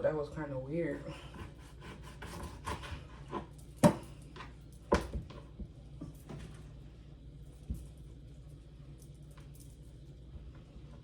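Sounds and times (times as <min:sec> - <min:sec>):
knife chopping on cutting board: 0:01.4 - 0:04.0.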